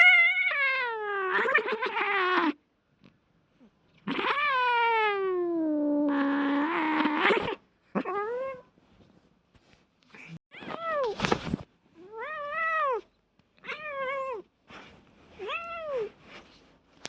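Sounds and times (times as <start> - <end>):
cat yowling in a fight: 0.0 - 2.6, 4.1 - 8.6.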